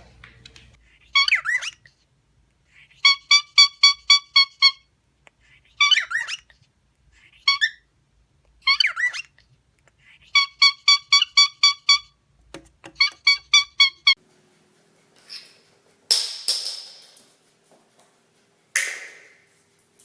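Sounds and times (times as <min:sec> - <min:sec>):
cockatiel chirping: 0:01.0 - 0:01.9, 0:02.8 - 0:04.8, 0:05.6 - 0:06.5, 0:08.6 - 0:09.4, 0:10.2 - 0:12.1, 0:12.9 - 0:14.2.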